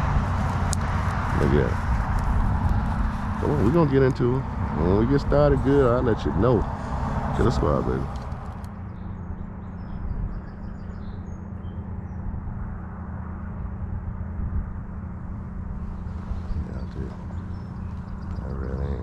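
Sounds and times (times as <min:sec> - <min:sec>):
steady low rumble: 0:00.0 - 0:19.0
faint bird chirps: 0:08.8 - 0:12.3, 0:15.8 - 0:19.0.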